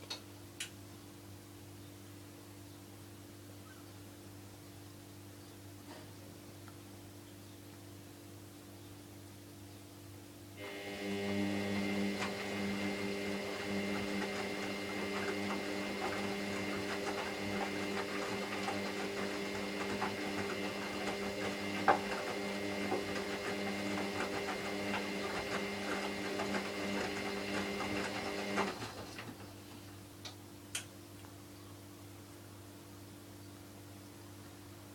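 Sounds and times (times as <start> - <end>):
washing machine motor humming: 10.6 - 30.0.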